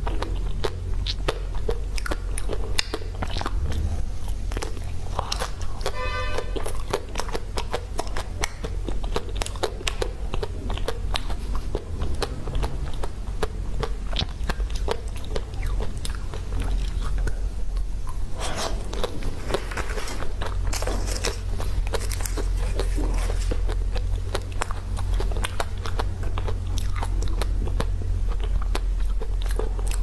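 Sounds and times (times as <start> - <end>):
chewing: 0.0 - 30.0
steady low hum: 0.0 - 30.0
chocolate shell crunching: 19.0 - 27.5.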